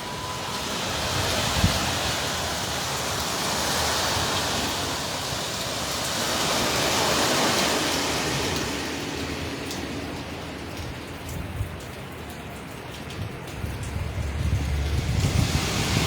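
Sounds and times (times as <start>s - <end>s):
driving rain: 0.0s - 16.0s
hurricane wind: 0.0s - 16.0s.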